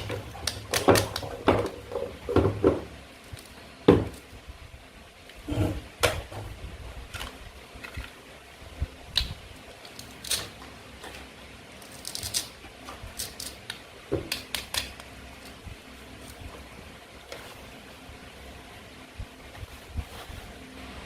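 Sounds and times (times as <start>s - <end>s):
toy knife and play food clicking: 9.2s - 10.6s, 11.8s - 15.1s.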